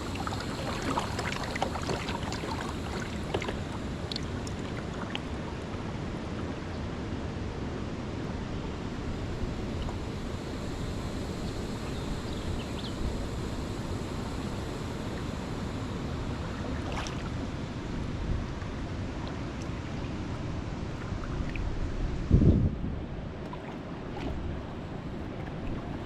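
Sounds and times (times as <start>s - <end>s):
moving water: 0.0s - 26.0s
wind on microphone: 8.3s - 26.0s.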